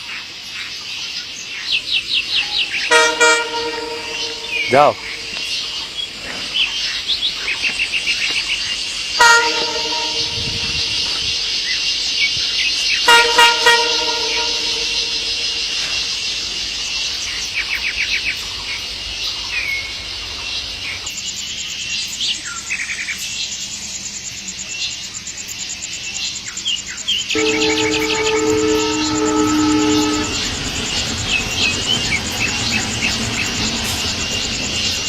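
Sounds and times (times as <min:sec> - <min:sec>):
cicadas droning: 0:00.0 - 0:35.0
bird chirps: 0:01.6 - 0:17.5
loud horn-like call: 0:02.6 - 0:05.6, 0:09.2 - 0:11.8, 0:13.0 - 0:16.2, 0:27.4 - 0:32.1.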